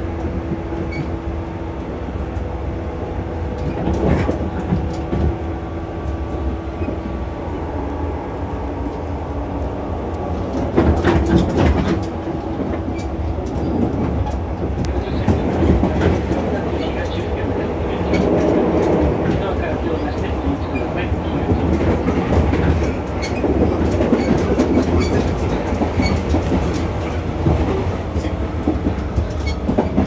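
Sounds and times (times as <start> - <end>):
train running gear rumble: 0.0 - 30.0
wheels clacking over rail joints: 10.2 - 30.0.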